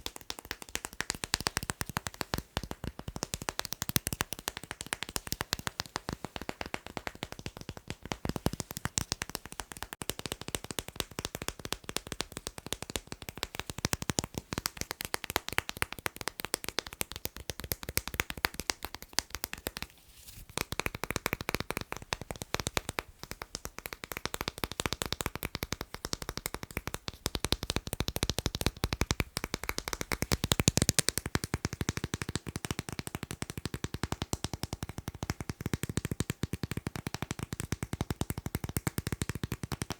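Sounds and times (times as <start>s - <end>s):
rapid tapping on magnets: 20.6s - 39.9s.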